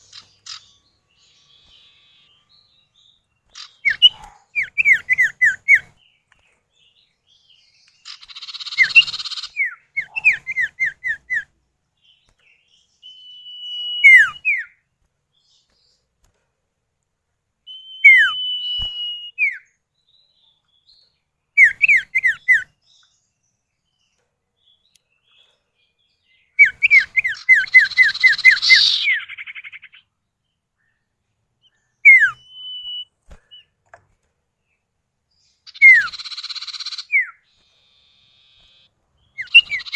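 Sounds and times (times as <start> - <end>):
birds whistling calls: 0.0 - 6.1, 7.4 - 11.5, 12.1 - 14.8, 17.6 - 19.8, 21.5 - 23.1, 26.3 - 30.1, 31.6 - 33.8, 35.6 - 39.9
bird harsh rasping chatter: 3.5 - 5.9, 8.0 - 11.4, 26.9 - 30.0, 35.7 - 39.9.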